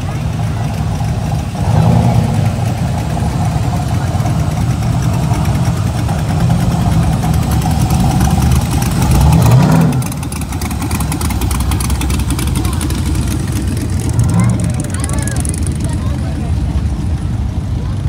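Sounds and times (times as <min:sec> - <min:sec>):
car engines rumbling past: 0:00.0 - 0:18.0.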